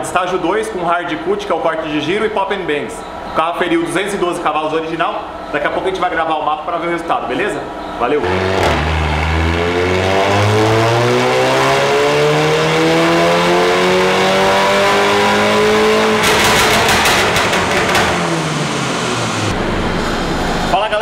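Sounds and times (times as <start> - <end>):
car engine full-throttle pull: 8.2 - 19.6
exhaust crackling pops: 8.5 - 9.5, 16.0 - 19.6.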